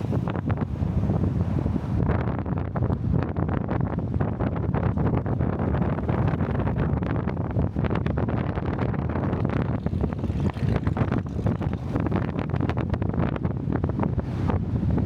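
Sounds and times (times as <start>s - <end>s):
road rumble: 0.0s - 15.0s
wind buffeting microphone: 0.0s - 15.0s.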